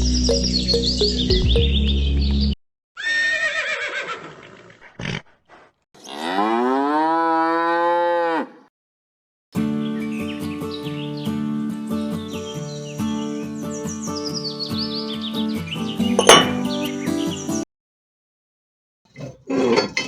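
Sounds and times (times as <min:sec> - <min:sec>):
cow mooing: 0:06.0 - 0:08.7.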